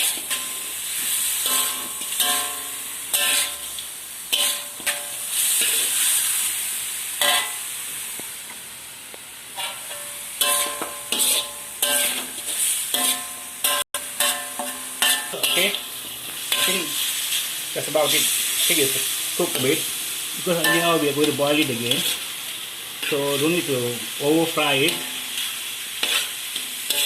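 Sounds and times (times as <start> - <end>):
utensil scraping the pan: 0.0 - 6.3, 9.6 - 19.8, 20.5 - 22.3, 24.7 - 27.0
chicken sizzling in oil: 0.0 - 27.0.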